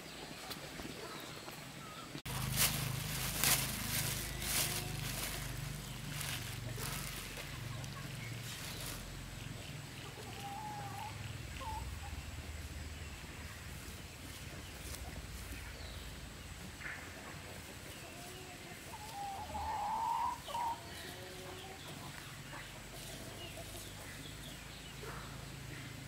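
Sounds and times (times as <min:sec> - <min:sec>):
chicken clucking: 0:02.3 - 0:12.6, 0:16.7 - 0:25.8.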